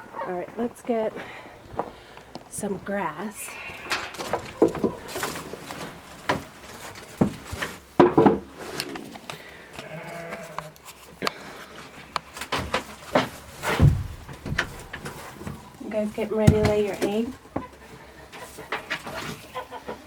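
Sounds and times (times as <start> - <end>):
farm animal bleating: 9.8 - 10.8
knocks and clicks of movement: 12.2 - 15.7.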